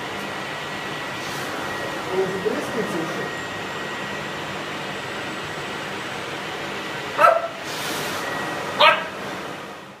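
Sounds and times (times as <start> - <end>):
vacuum cleaner whirring: 0.0 - 10.0
dog barking: 7.2 - 7.6, 8.8 - 9.2.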